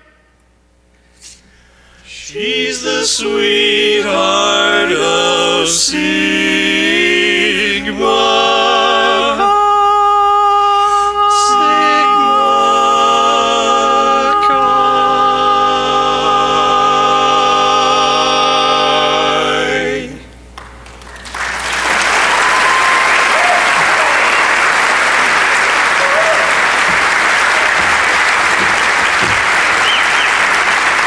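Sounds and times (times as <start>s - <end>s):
vocal quartet singing a chord: 1.3s - 20.5s
audience applause: 20.6s - 31.0s.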